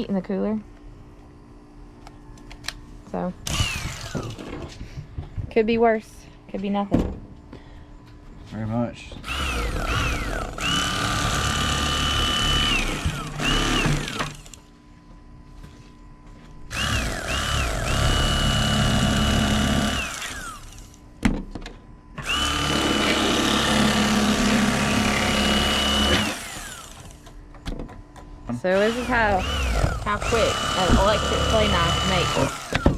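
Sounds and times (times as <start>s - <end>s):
electric knife motor whine: 3.4s - 4.5s, 9.2s - 14.6s, 16.7s - 21.1s, 22.2s - 27.3s, 28.7s - 32.9s.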